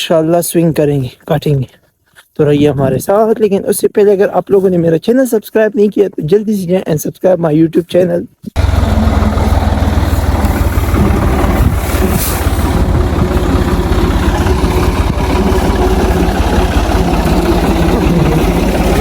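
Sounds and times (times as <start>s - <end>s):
tractor engine rumbling: 8.5s - 19.0s.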